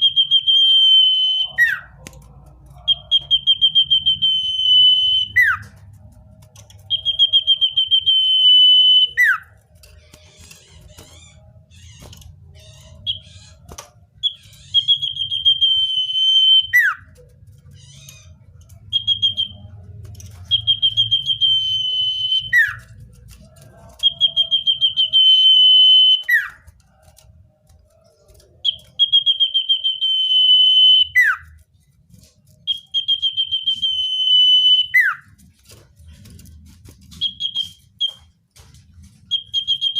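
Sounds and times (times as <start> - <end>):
bird singing trilled whistles: 32.6 - 35.2, 37.1 - 38.2, 39.3 - 39.9.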